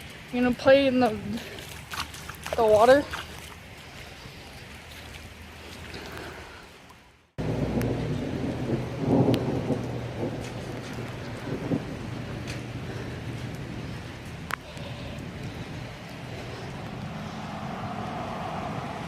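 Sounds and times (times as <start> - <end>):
heavy rain falling: 7.4 - 19.0
low rumble: 7.4 - 19.0.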